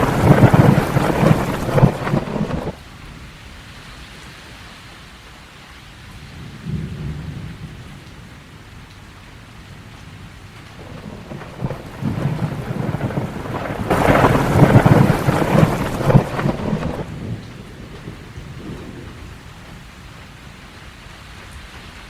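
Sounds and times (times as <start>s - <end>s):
thunder rumbling: 0.0s - 2.8s, 10.2s - 20.6s
steady rain: 0.0s - 22.0s.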